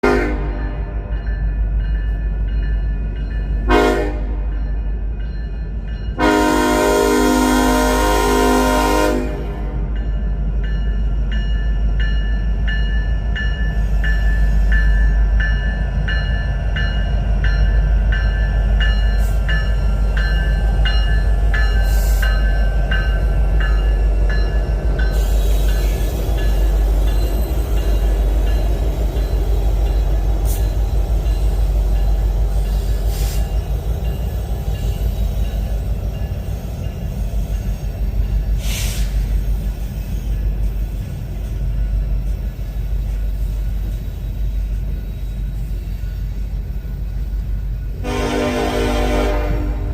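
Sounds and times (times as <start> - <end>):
crossing bell dinging: 0.0 - 7.8, 9.6 - 38.6
freight train rumbling past: 0.0 - 49.9.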